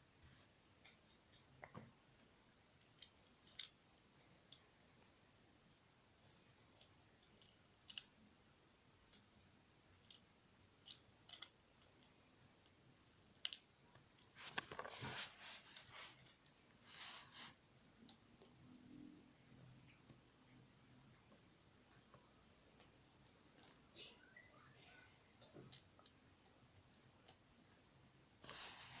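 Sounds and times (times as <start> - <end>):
plastic bricks clicking together: 2.8 - 3.8.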